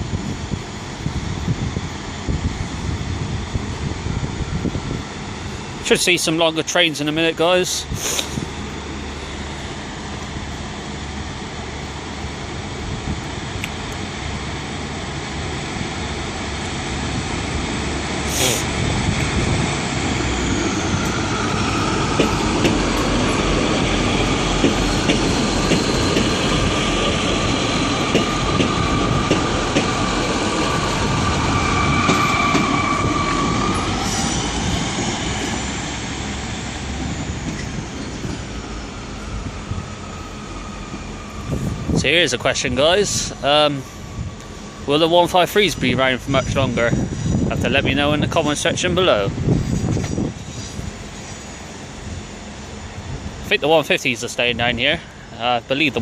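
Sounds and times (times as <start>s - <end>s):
train rumbling past: 0.0s - 56.0s
wheels squealing on rails: 15.9s - 55.9s.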